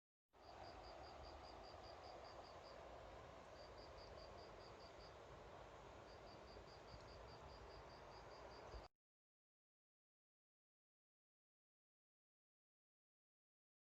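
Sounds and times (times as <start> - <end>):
cricket chirping: 0.4 - 5.2, 6.0 - 8.9
faint outdoor hiss: 0.4 - 8.9.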